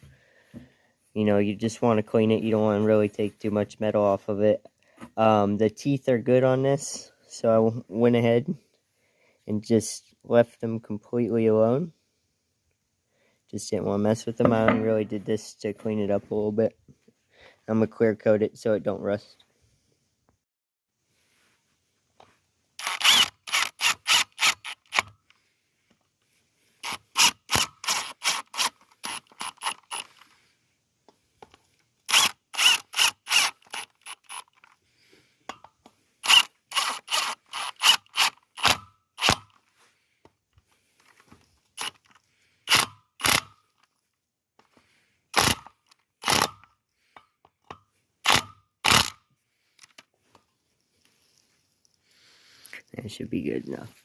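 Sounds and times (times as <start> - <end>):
ratchet wrench clicking: 22.8 - 25.1, 26.8 - 30.2, 32.1 - 34.8, 36.2 - 39.6, 41.8 - 43.6, 45.4 - 46.7, 47.7 - 49.2.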